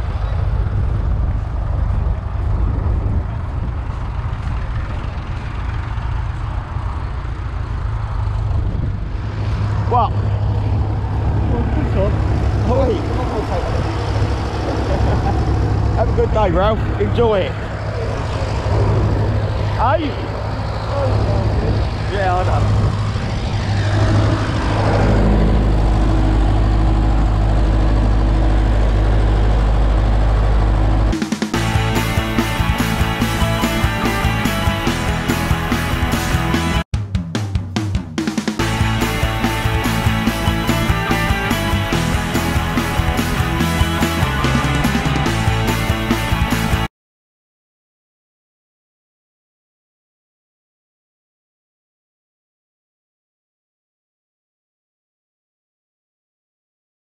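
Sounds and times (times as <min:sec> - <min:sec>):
tractor engine rumbling: 0:00.0 - 0:36.8
music: 0:31.1 - 0:46.9.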